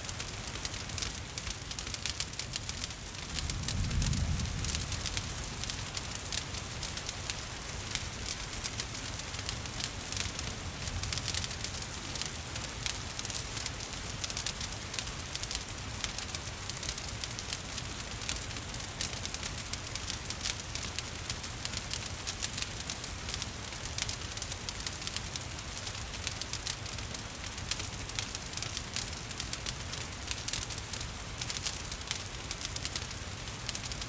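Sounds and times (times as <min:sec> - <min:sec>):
gentle rain hiss: 0:00.0 - 0:34.0
wood fire crackling and popping: 0:00.0 - 0:34.0.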